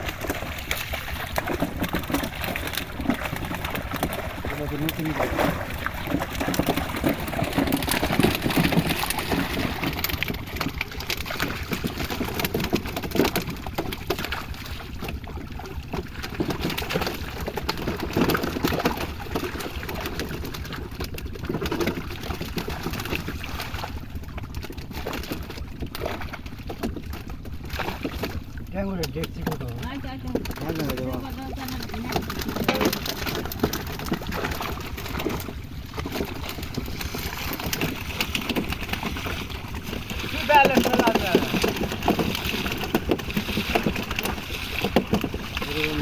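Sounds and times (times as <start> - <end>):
pond water splashing: 0.0 - 46.0.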